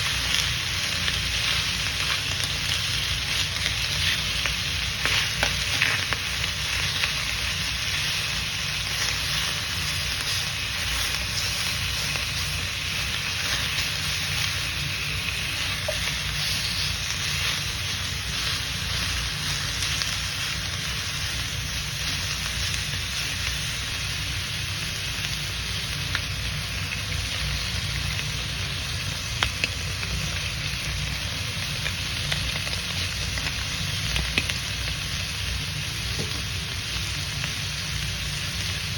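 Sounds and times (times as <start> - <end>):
chicken sizzling in a pan: 0.0 - 38.9.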